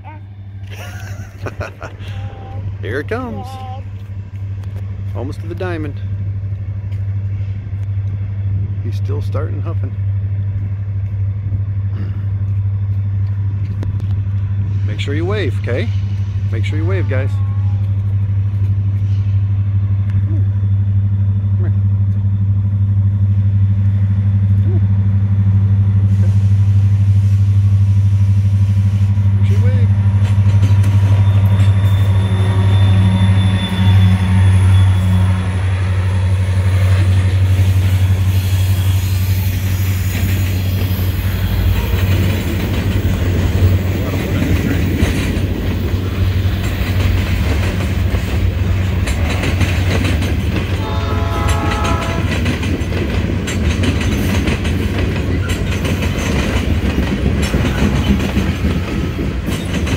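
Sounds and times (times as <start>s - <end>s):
diesel locomotive engine drone: 0.0s - 59.9s
train horn: 30.8s - 39.2s, 41.1s - 42.5s, 50.7s - 52.6s
freight car wheels clacking on rails: 41.7s - 59.9s.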